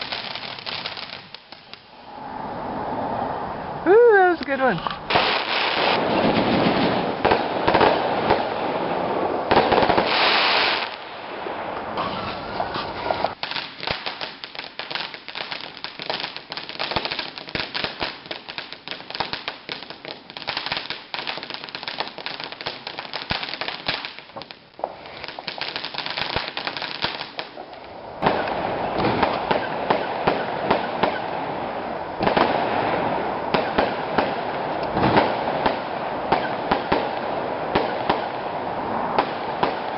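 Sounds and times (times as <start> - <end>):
fireworks crackling: 0.0 - 2.0, 3.9 - 39.9.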